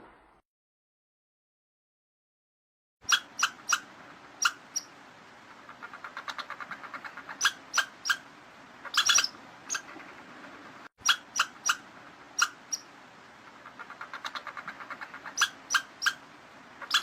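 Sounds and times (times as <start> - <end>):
small animal squeaking: 3.1 - 4.9, 5.6 - 10.2, 11.0 - 12.9, 13.6 - 16.2, 16.8 - 17.0.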